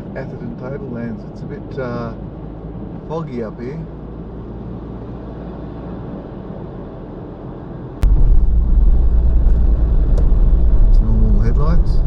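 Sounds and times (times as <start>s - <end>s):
car road and engine noise: 0.0s - 12.0s
loud low rumble: 8.0s - 12.0s.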